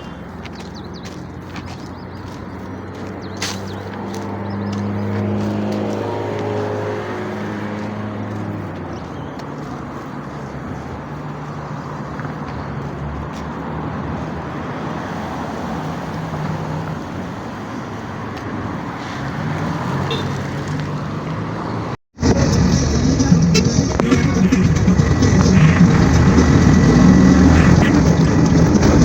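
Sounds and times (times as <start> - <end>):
road noise rushing: 0.0 - 29.0
low engine hum: 21.5 - 29.0.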